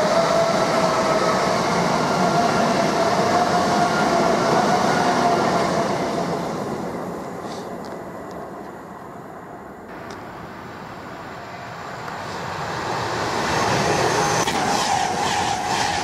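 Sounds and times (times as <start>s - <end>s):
train rushing past: 0.0s - 16.0s
train wheels beating: 12.0s - 16.0s.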